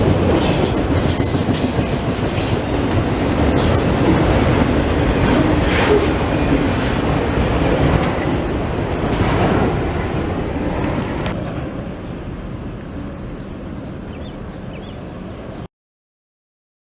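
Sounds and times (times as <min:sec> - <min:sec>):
train wheels clattering on track: 0:00.0 - 0:11.8.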